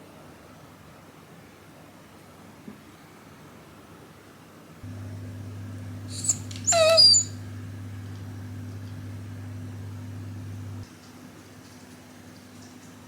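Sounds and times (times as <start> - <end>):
steady low hum: 4.8 - 10.9
dog whining: 6.1 - 7.4.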